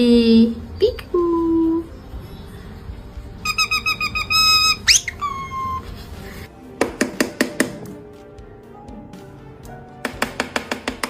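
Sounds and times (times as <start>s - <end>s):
parrot whistling: 3.4s - 6.0s.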